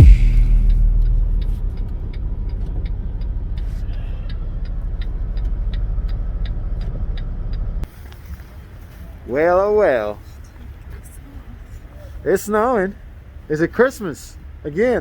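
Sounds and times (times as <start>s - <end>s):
light even ticking: 0.0s - 7.8s
truck engine and road noise: 0.0s - 15.0s.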